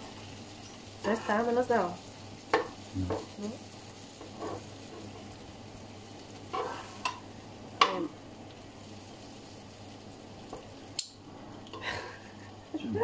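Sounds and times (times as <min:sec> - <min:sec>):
prawns sizzling in oil: 0:00.0 - 0:13.0
tongs clicking and scraping pan: 0:04.2 - 0:05.3, 0:06.4 - 0:08.0.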